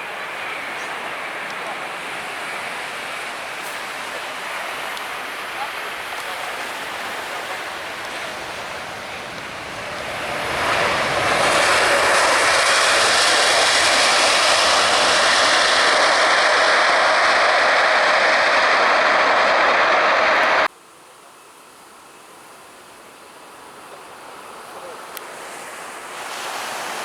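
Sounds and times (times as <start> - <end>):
jet engines roaring: 0.0 - 20.7.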